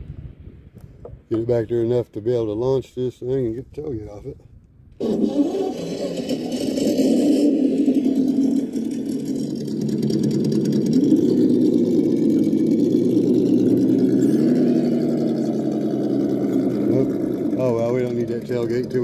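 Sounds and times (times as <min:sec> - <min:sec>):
electric motor humming: 0:05.0 - 0:19.0.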